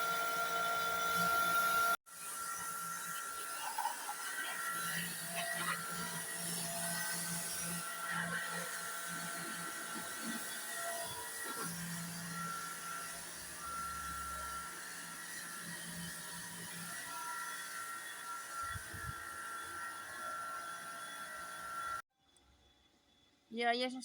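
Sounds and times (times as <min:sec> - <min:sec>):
pressure washer motor humming: 0:02.8 - 0:16.0.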